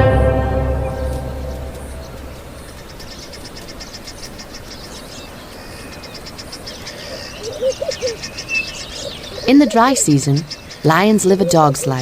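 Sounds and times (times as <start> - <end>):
orchestral music with timpani: 0.0 - 2.6
steady background hiss: 0.0 - 12.0
rapid high chirping calls: 2.5 - 12.0.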